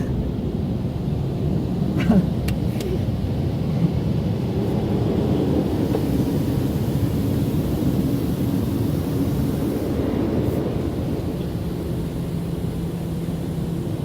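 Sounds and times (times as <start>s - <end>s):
car wash machinery rumbling: 0.0s - 14.0s
water spray hissing: 5.5s - 14.0s.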